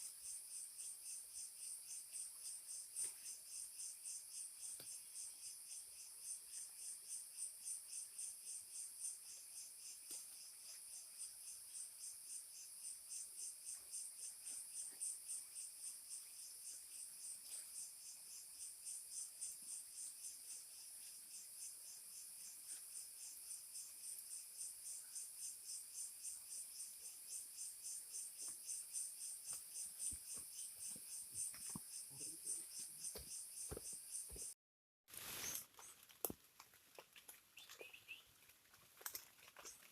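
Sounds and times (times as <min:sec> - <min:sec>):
insects chirping: 0:00.0 - 0:34.6, 0:37.0 - 0:39.9
faint ticks and rustles: 0:35.1 - 0:39.9.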